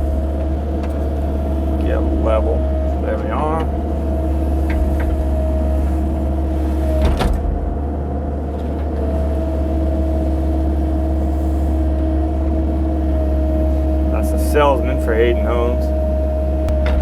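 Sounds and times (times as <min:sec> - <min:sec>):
diesel engine running with whine: 0:00.0 - 0:17.0
clunk: 0:04.4 - 0:07.8, 0:16.6 - 0:17.0.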